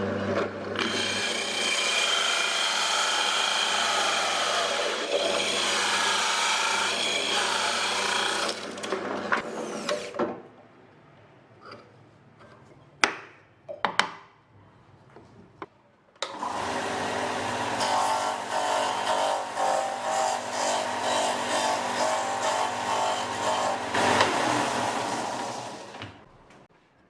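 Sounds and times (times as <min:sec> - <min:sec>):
electric power tool running: 0:00.8 - 0:08.9, 0:16.3 - 0:26.2.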